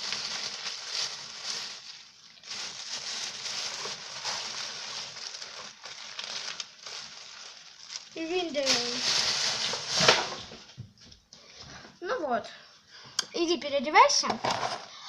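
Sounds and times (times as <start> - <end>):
doll dress rustling and crackling: 0.0 - 11.3.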